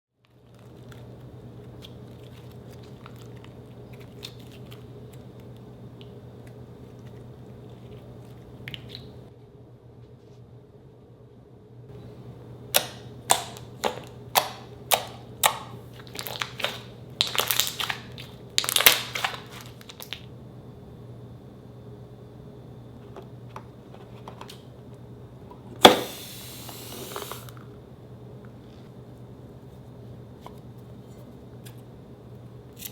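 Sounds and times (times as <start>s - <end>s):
slime being squished: 12.8s - 20.2s.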